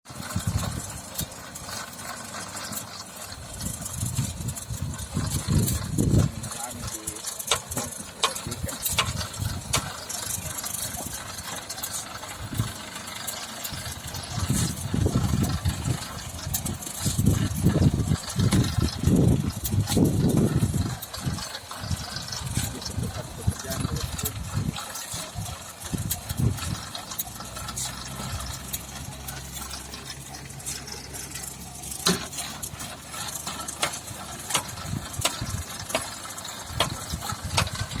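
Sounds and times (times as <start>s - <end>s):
electric motor hum: 0.1s - 38.0s
sieving machine rattling: 0.1s - 38.0s.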